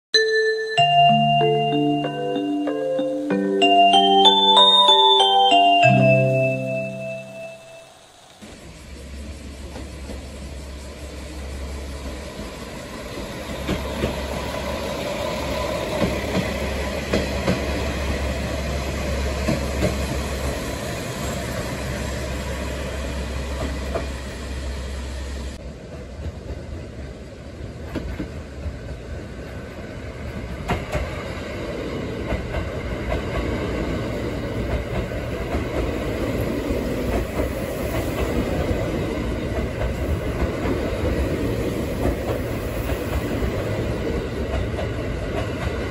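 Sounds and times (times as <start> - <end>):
diesel railcar rumble: 3.5 - 45.9
train wheels clacking over rail joints: 11.8 - 20.6.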